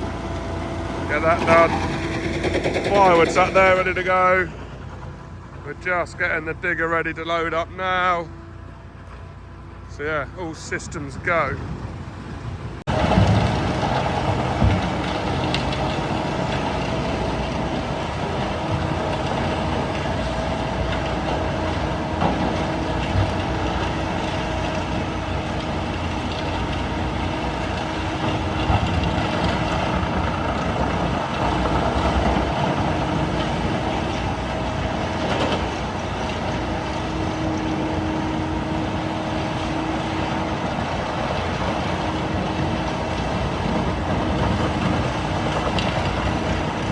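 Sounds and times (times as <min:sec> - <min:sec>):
steady whine: 0:00.0 - 0:11.3
excavator diesel engine running: 0:00.0 - 0:46.9.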